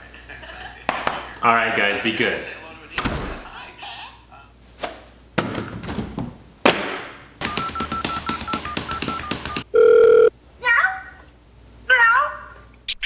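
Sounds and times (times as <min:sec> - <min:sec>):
phone keypad beeps: 0:07.4 - 0:10.3.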